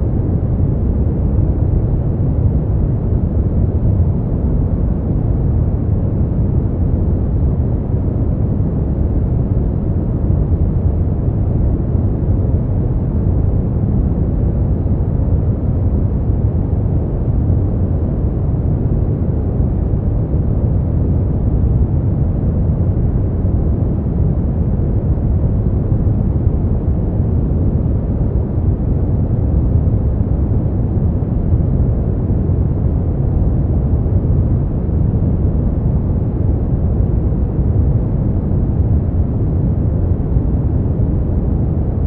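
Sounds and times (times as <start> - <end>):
deep muffled white noise: 0.0 - 42.0.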